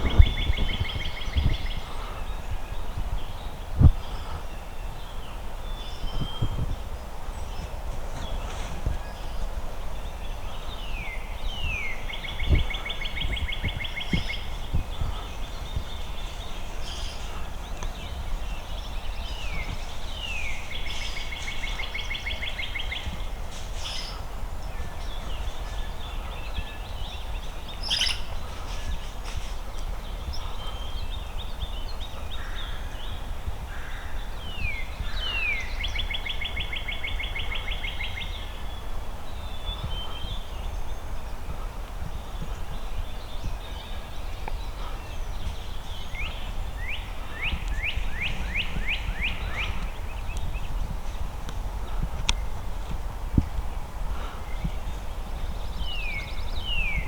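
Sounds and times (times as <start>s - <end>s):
low wind rumble: 0.0s - 57.0s
songbird singing: 0.0s - 57.0s.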